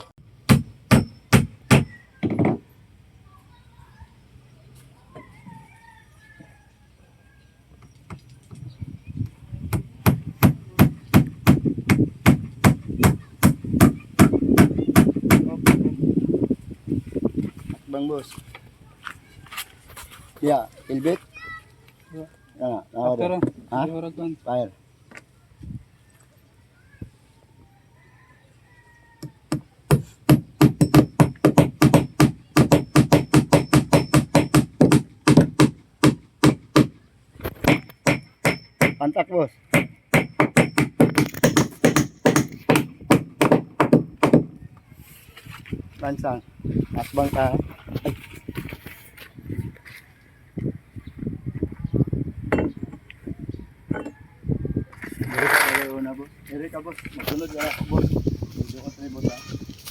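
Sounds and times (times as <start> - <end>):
rapid hammer strikes: 0.5 - 1.9, 9.7 - 15.8, 29.5 - 39.0, 39.7 - 44.6.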